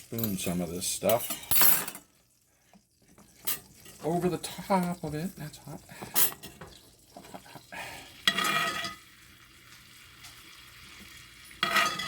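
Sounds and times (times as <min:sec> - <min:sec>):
pan sizzling: 0:00.0 - 0:12.0
metal spoon scraping skillet: 0:00.2 - 0:02.1, 0:03.1 - 0:04.0, 0:08.2 - 0:09.1, 0:11.4 - 0:12.0.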